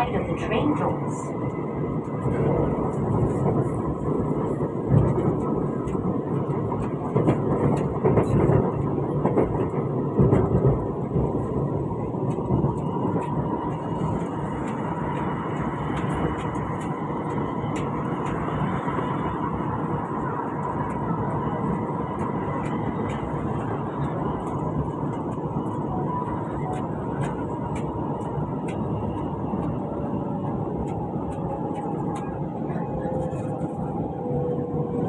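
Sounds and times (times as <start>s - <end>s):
train wheels rumbling on rail: 0.0s - 35.0s
train whine: 0.0s - 35.0s.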